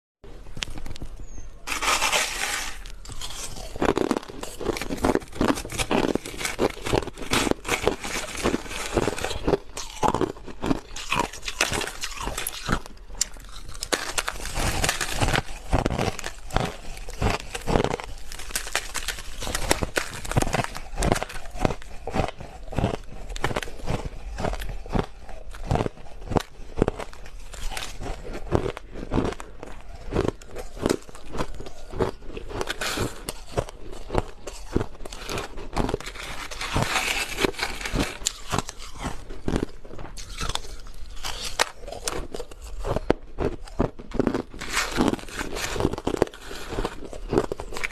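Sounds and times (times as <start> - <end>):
crushed ice being chewed: 0.3 - 47.9.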